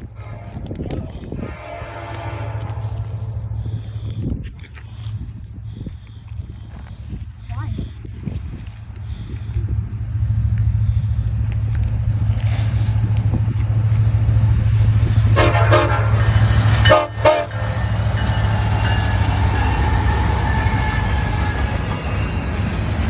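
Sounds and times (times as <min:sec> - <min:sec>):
diesel locomotive rumbling: 0:00.0 - 0:23.0
locomotive horn blasts: 0:00.1 - 0:00.8, 0:01.4 - 0:03.5, 0:15.3 - 0:22.5.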